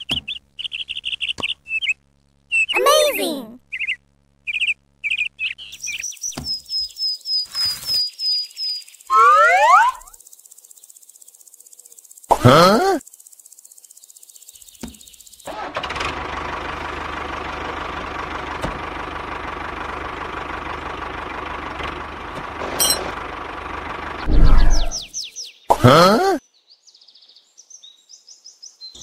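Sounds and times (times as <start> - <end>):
rising whistle sound effect: 9.1 - 10.2, 24.3 - 25.0.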